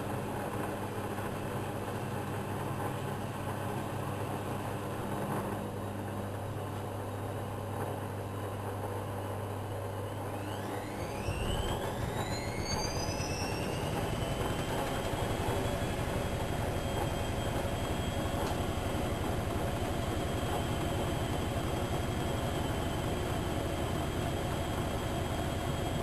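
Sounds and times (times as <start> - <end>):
washing machine humming: 0.0 - 26.0
motor whine rising in pitch: 10.0 - 26.0.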